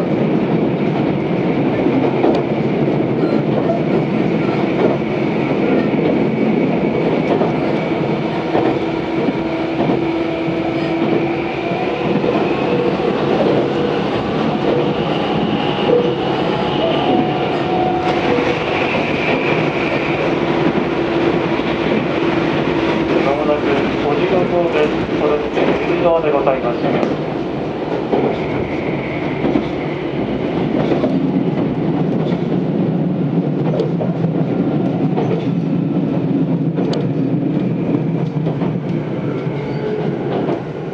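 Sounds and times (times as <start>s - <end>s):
train wheels rumbling on rail: 0.0s - 40.9s
wheels clickety-clack: 30.6s - 32.7s.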